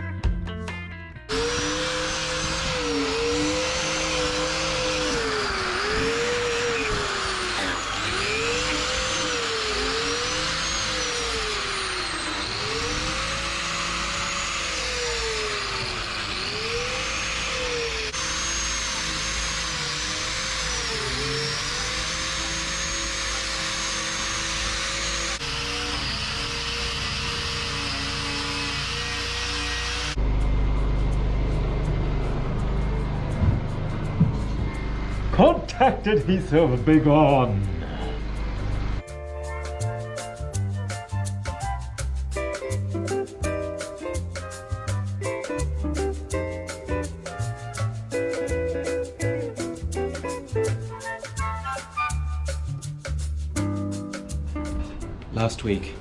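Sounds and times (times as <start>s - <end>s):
electric power tool motor running: 1.3s - 39.1s.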